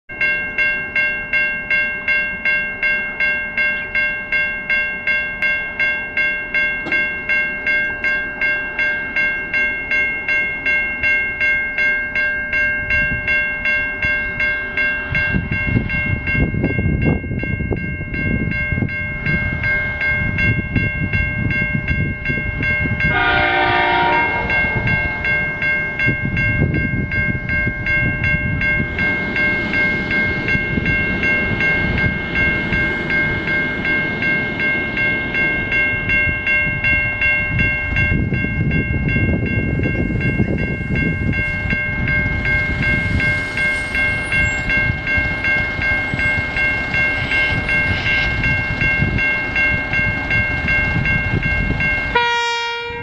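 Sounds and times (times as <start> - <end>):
level crossing bell ringing: 0.1 - 53.0
train rumble: 0.1 - 53.0
locomotive horn: 23.1 - 24.9, 52.1 - 53.0.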